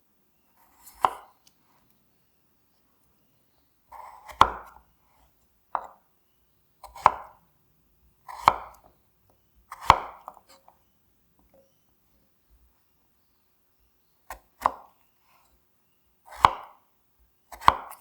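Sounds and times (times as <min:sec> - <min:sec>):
knife cutting on cutting board: 0:00.6 - 0:01.4, 0:03.9 - 0:04.8, 0:06.8 - 0:07.3, 0:08.3 - 0:08.9.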